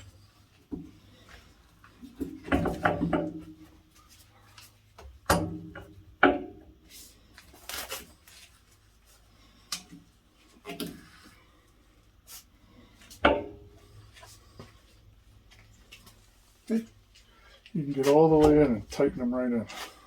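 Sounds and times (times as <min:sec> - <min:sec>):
tools clanking and knocking: 0:02.0 - 0:03.6, 0:13.2 - 0:13.9.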